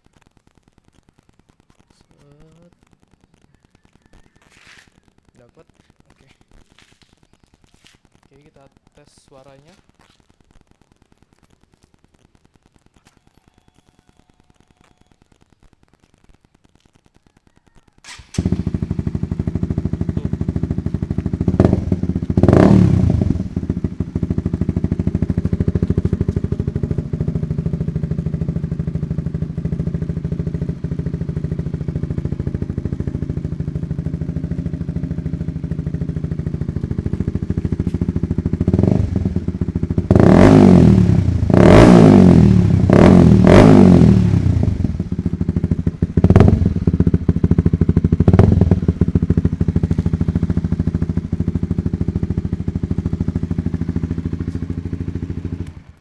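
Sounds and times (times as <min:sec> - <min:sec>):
motorcycle engine idling and revving: 0:18.1 - 0:56.0.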